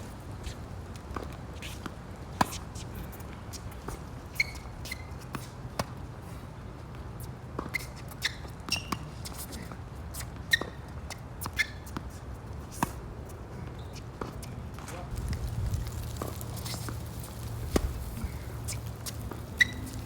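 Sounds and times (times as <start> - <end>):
shoe squeaks: 4.3 - 5.6, 7.2 - 15.2, 16.2 - 20.0
wind on microphone: 15.1 - 16.4
ball bouncing: 15.3 - 20.0.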